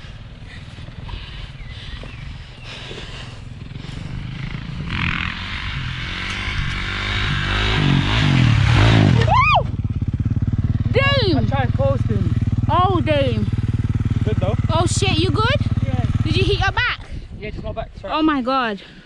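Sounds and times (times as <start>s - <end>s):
motorcycle engine revving hard: 3.6s - 16.7s
person shouting: 9.2s - 9.7s.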